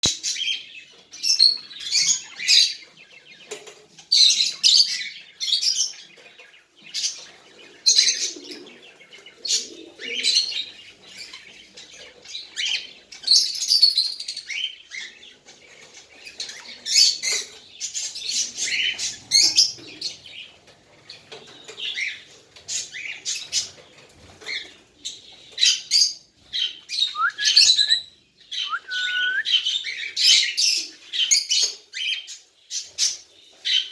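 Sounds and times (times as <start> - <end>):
baby cockatiel chirping: 28.6 - 29.7.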